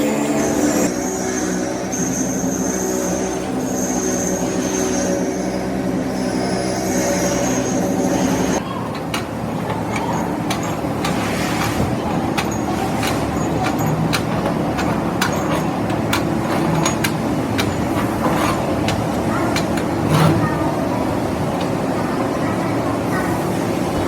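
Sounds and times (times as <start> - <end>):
metal clicks and knocks: 8.8 - 20.4.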